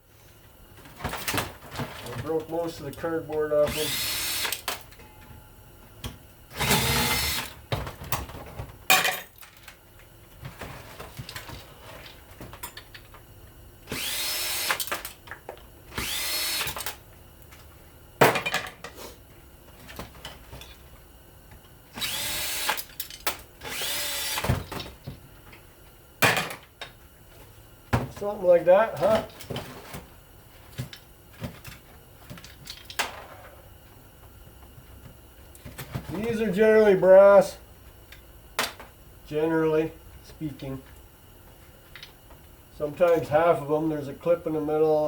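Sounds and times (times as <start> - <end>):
power drill whining: 3.6 - 4.7, 6.5 - 7.5, 13.9 - 14.9, 16.0 - 16.9, 22.0 - 22.8, 23.6 - 24.5.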